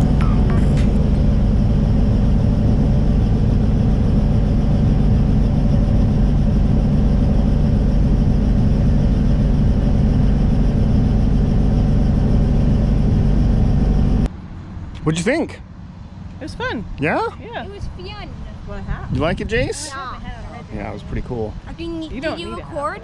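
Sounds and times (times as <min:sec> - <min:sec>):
helicopter engine and rotor drone: 0:00.0 - 0:14.3.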